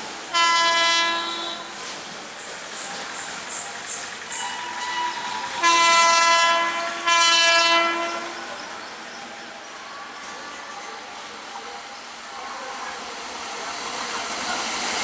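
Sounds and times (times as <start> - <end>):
passing train noise: 0.0 - 15.0
locomotive air horn blasts: 0.3 - 1.7, 4.8 - 8.5.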